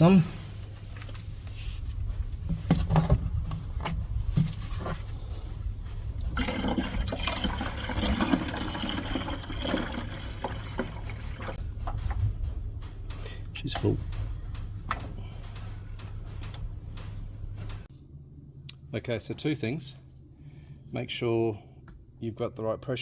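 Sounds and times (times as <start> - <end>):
fluid pouring in a stream: 6.3 - 11.6.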